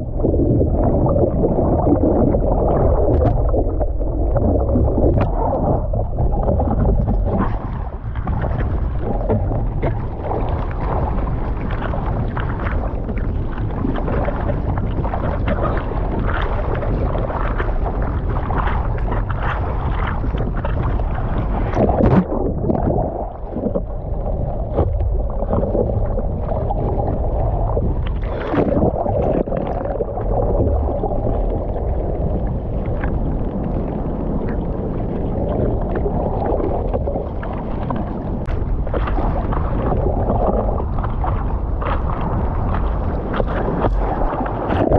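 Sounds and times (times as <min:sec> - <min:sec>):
ocean water rushing: 0:00.0 - 0:44.9
water splashes: 0:00.0 - 0:44.9
wind buffeting microphone: 0:00.0 - 0:44.9.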